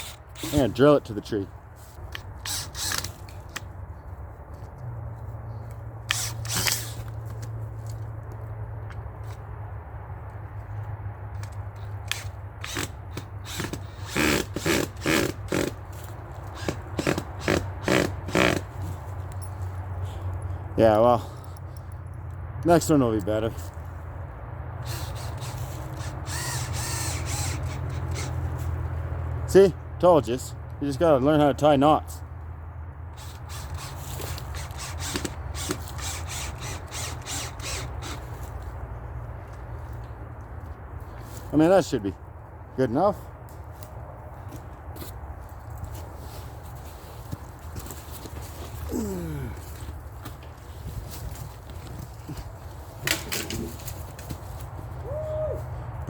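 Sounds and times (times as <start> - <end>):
drill driving a screw: 2.4 - 3.1, 6.1 - 7.0, 12.1 - 15.8, 16.6 - 18.6, 24.8 - 28.3, 33.2 - 38.3.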